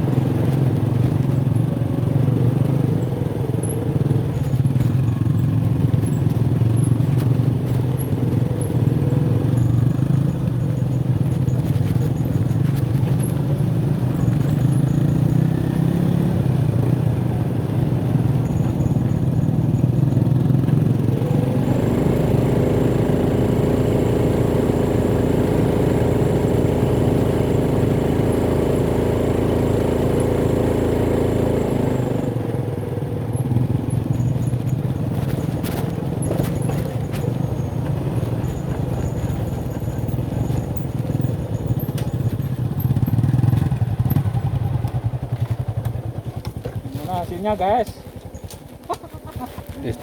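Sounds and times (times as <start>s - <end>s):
knocks and rattles on rough ground: 0.0s - 26.2s, 33.2s - 50.0s
motorcycle engine running: 0.0s - 50.0s.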